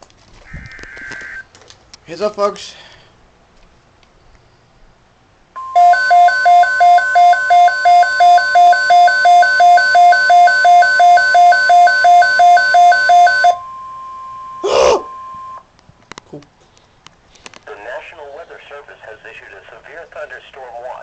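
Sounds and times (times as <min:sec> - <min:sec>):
pulsing alarm beeps: 0:05.6 - 0:15.6
steady warning tone: 0:05.6 - 0:15.6.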